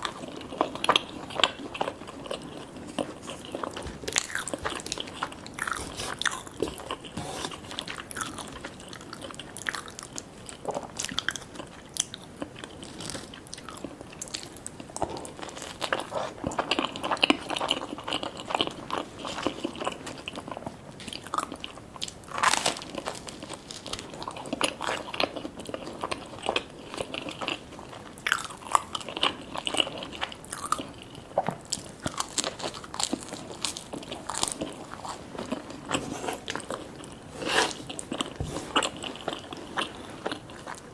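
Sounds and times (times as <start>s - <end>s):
person chewing food: 0.0s - 40.9s.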